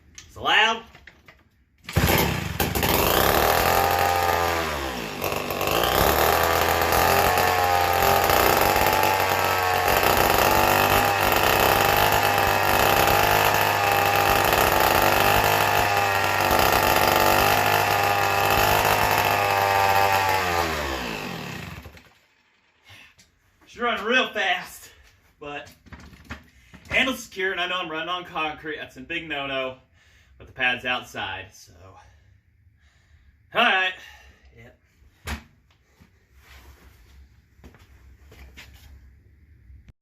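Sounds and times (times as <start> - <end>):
chainsaw running: 1.9 - 22.8.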